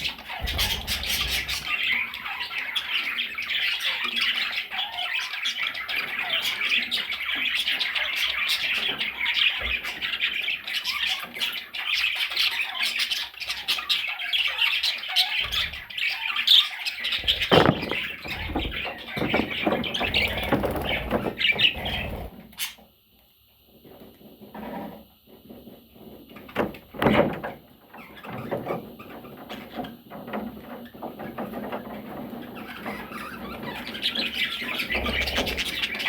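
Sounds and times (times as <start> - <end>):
budgerigars chattering and squawking: 0.0 - 22.8, 32.4 - 36.0.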